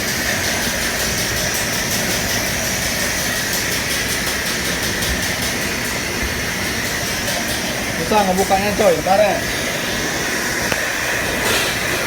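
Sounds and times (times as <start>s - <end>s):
commercial kitchen machinery: 0.0s - 12.0s.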